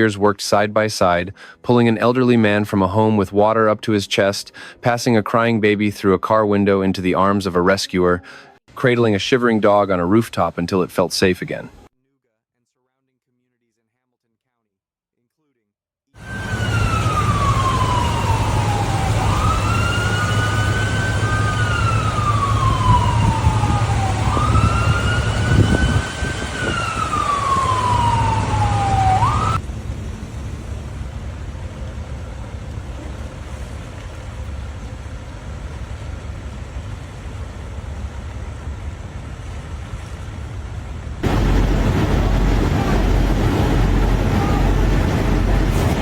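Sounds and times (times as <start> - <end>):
emergency vehicle siren wailing: 16.2 - 29.6, 41.2 - 46.0
low engine hum: 26.7 - 46.0
steady rushing noise: 35.0 - 46.0.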